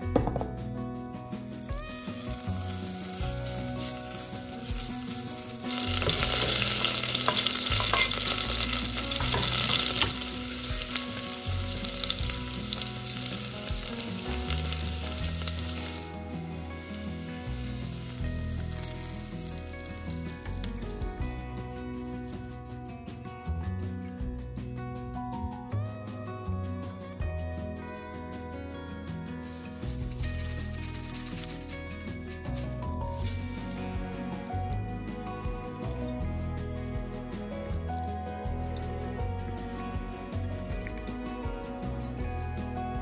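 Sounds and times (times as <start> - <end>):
butter and garlic sizzling in pot: 1.3 - 23.0.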